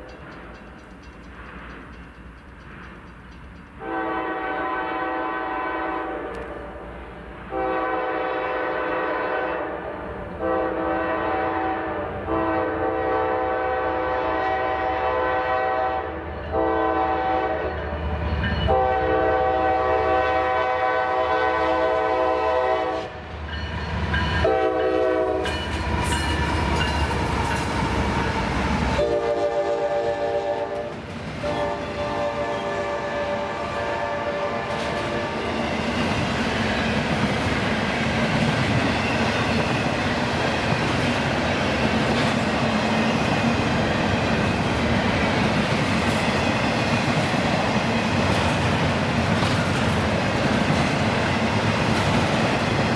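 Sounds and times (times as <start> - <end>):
train rumble and rail noise: 0.0 - 52.9
locomotive air horn blasts: 3.8 - 6.9, 7.5 - 17.6, 18.7 - 23.2, 24.4 - 25.6, 29.0 - 35.4.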